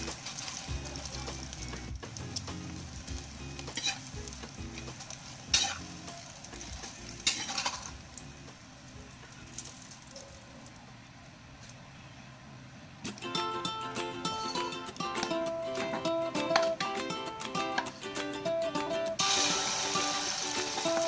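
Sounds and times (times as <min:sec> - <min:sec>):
omelette sizzling in oil: 0:00.0 - 0:10.8, 0:19.2 - 0:21.0
metal spatula scraping wok: 0:03.7 - 0:04.1, 0:04.8 - 0:06.0, 0:06.7 - 0:08.0.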